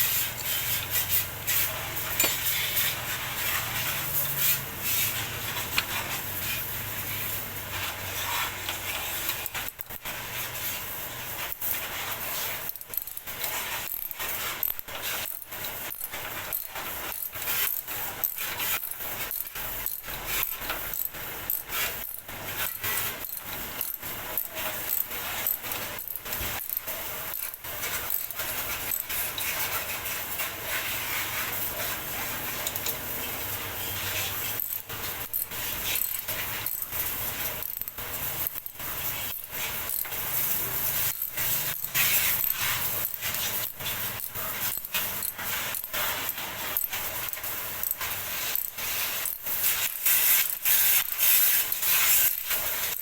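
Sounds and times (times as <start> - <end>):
scraping and rubbing metal parts: 0.0 - 53.0
small metallic clicks and knocks: 2.1 - 2.9, 32.6 - 33.4.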